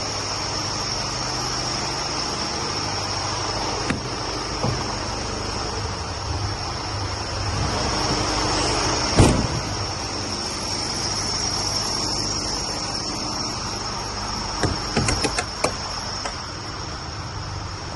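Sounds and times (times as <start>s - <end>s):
diesel truck engine idling: 0.0s - 17.9s
high whine: 0.0s - 17.9s.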